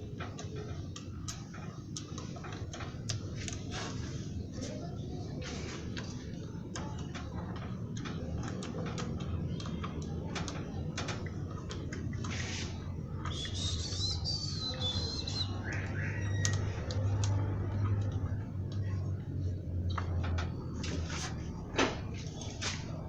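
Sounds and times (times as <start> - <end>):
high warbling chirp: 13.3 - 16.7.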